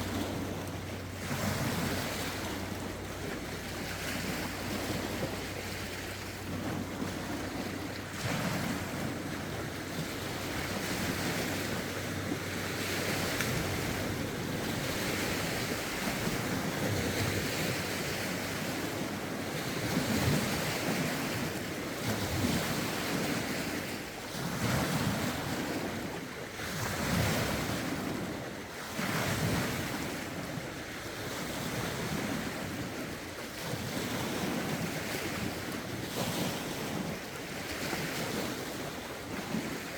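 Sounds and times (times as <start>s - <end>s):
waves breaking on shore: 0.0s - 39.9s
wind buffeting microphone: 0.0s - 39.9s.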